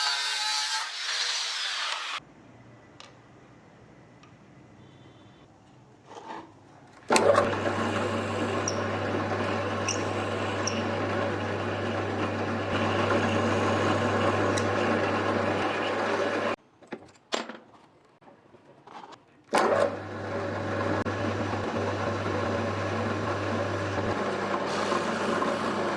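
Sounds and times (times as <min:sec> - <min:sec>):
electric power tool running: 0:07.2 - 0:16.6, 0:19.6 - 0:25.9.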